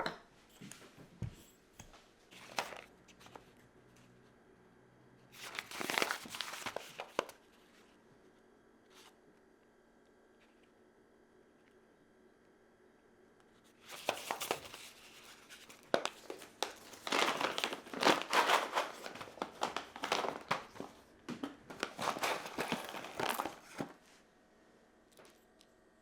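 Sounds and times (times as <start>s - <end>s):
crinkly wrapping rustling: 2.3s - 3.5s, 5.4s - 7.4s, 13.8s - 24.1s.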